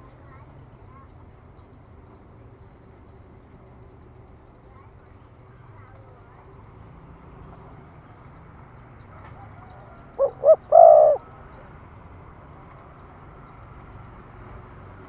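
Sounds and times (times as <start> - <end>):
dove cooing: 9.3 - 11.7.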